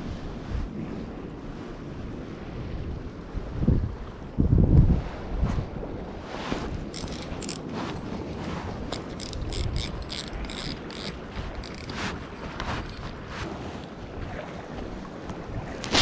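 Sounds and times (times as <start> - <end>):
wind noise: 0.0 - 16.0
fishing reel clicking and whirring: 6.8 - 13.1.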